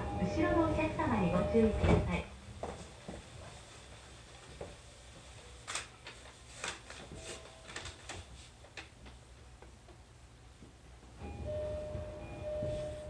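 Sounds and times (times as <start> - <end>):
faint low train hum: 0.0 - 5.7, 7.1 - 13.0.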